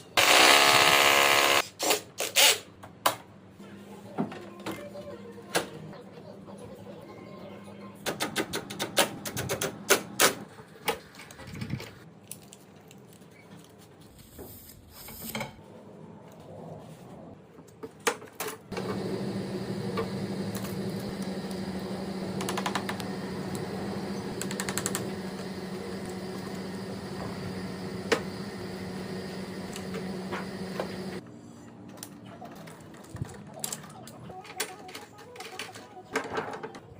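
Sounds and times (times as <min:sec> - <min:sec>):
motor humming: 0:18.7 - 0:31.2.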